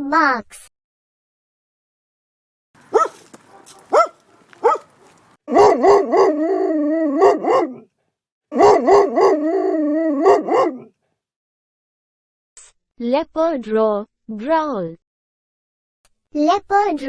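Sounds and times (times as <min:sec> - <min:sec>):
dog barking and howling: 0:02.8 - 0:07.9, 0:08.5 - 0:11.0.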